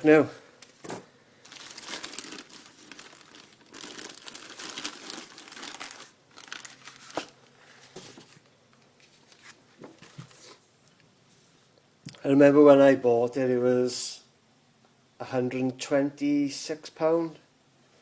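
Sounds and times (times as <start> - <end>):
crinkling and rustling: 0.6 - 11.0.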